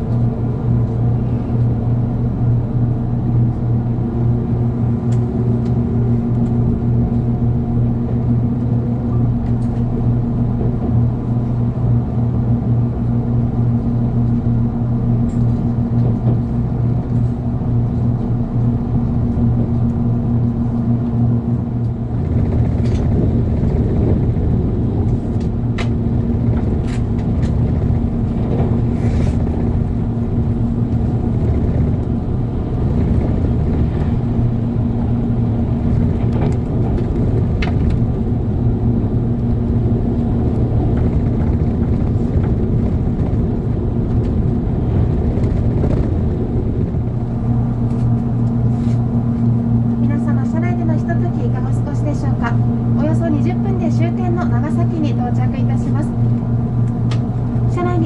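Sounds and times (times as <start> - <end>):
train interior hum and rumble: 0.0 - 58.0
wheels clicking over track: 22.1 - 34.4, 39.4 - 48.1.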